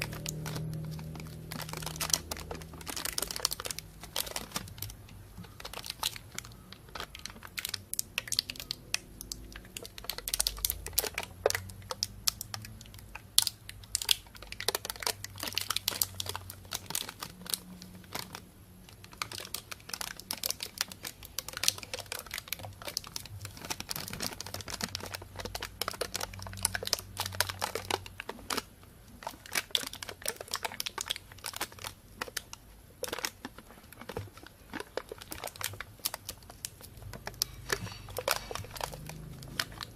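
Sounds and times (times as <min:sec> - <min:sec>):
plastic bag crinkling: 0:00.0 - 0:39.9.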